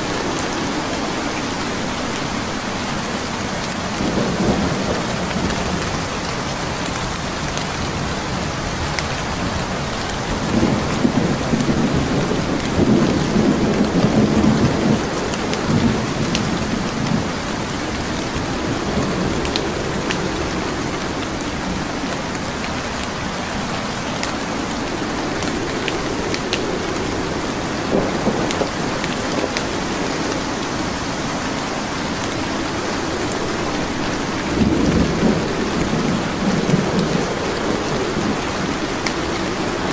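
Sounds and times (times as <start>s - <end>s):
steady rain hissing: 0.0s - 39.9s
wood fire crackling: 16.2s - 30.8s.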